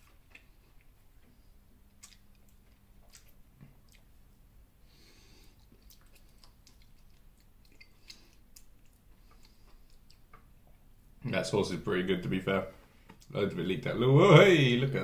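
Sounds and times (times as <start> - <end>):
faint chewing: 0.0 - 11.0.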